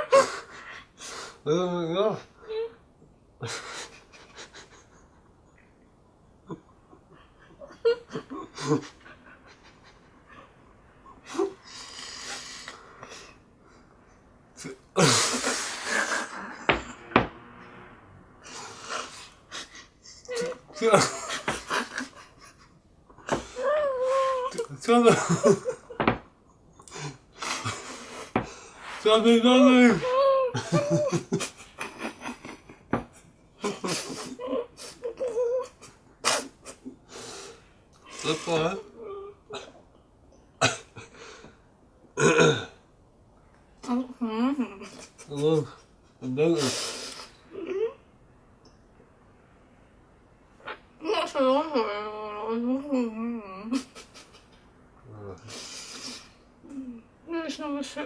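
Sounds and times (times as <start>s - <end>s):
muffled laughs and snorts: 3.4s - 5.3s, 14.6s - 17.2s, 53.5s - 56.3s.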